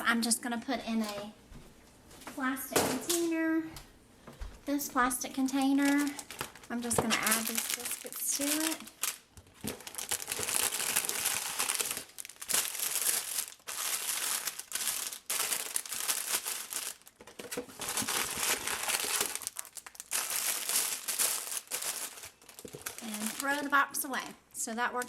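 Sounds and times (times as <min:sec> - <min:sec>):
packaging crinkling and rustling: 0:05.5 - 0:25.0.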